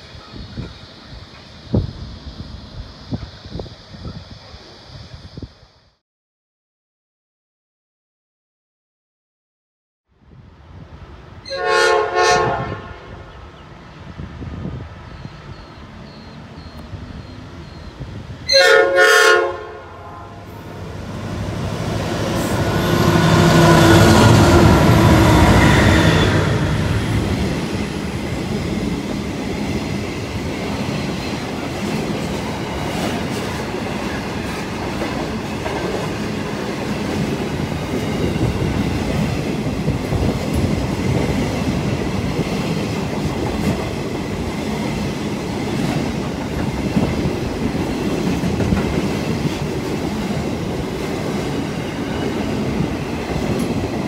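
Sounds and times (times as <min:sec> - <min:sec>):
train horn: 0:11.4 - 0:13.4, 0:18.4 - 0:20.8, 0:22.3 - 0:27.0
locomotive engines passing: 0:19.9 - 0:54.0.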